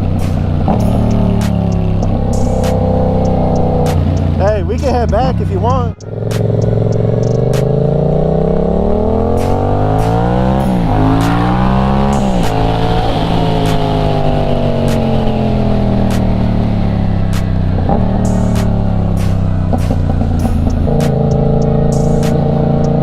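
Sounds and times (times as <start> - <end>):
sharp ticks: 0.0 - 7.9, 17.3 - 23.0
motorcycle engine accelerating: 0.0 - 23.0.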